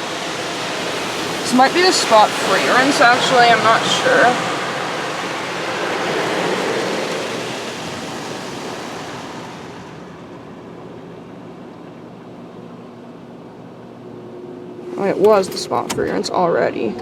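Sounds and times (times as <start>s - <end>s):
rinse water spraying on car: 0.0s - 10.2s
low steady hum: 6.6s - 17.0s.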